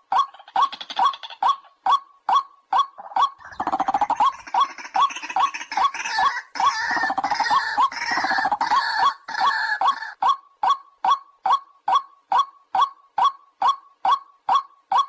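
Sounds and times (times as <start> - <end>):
harsh croaking bird calls: 0.0 - 10.8.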